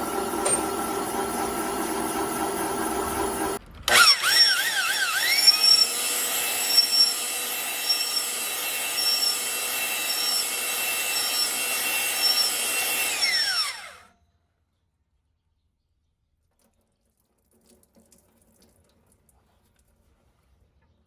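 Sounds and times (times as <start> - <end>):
machining tool spinning: 0.0 - 14.1.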